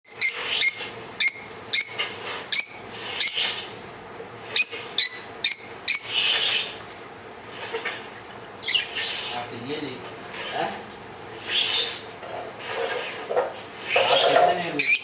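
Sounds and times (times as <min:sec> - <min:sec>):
bird chirping shrilly: 0:08.6 - 0:09.4.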